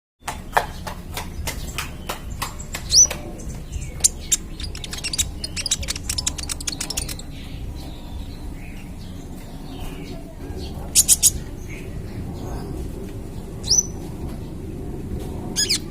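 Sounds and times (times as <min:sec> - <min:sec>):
steady low hum: 0:00.2 - 0:15.9
bird singing sharp high chips: 0:02.4 - 0:07.5, 0:11.0 - 0:11.4.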